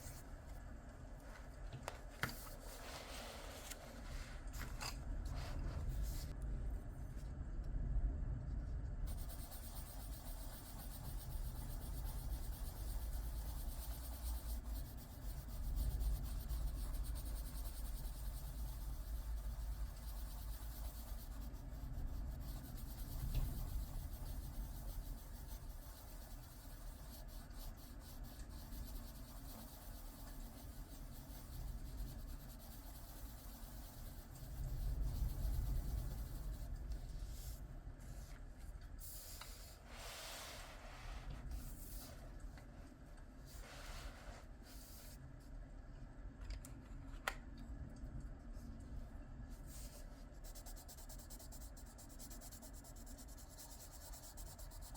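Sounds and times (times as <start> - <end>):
pencil scratching on paper: 9.1 - 37.6, 49.7 - 54.9.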